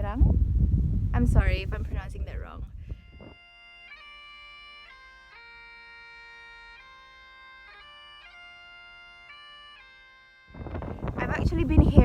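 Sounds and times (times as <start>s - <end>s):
faint bagpipe music: 2.9s - 12.0s.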